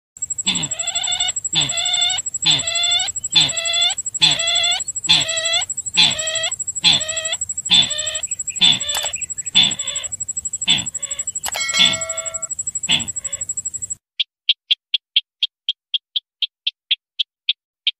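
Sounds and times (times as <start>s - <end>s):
faint steady high whine: 0.2s - 14.0s
short bird calls: 0.2s - 14.0s.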